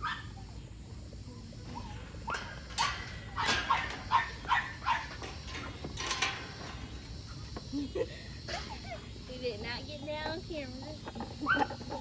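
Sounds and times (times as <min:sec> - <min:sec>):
dog barking: 0:00.0 - 0:00.3, 0:02.3 - 0:05.1.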